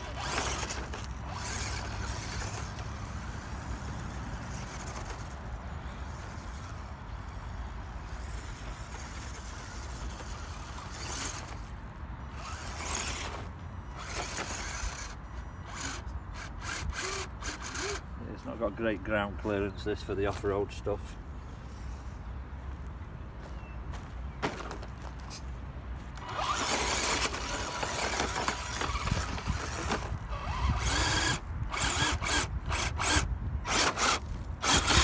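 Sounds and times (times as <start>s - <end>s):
toy truck motor whirring: 0.0s - 18.1s, 26.2s - 35.0s.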